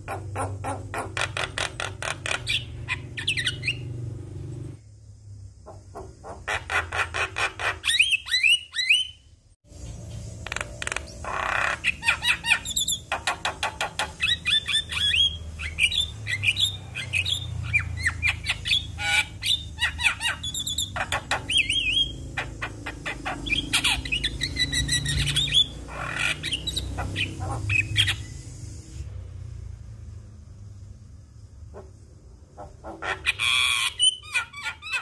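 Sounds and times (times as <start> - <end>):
bird singing varied calls: 0.0 - 3.9, 10.4 - 28.5.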